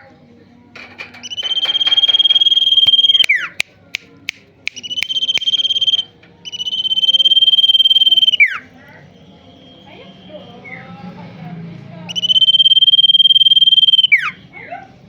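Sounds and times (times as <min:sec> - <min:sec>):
bird sharp short chips: 0:00.9 - 0:03.5
songbird trilling: 0:01.2 - 0:03.6, 0:04.8 - 0:08.7, 0:12.1 - 0:14.4.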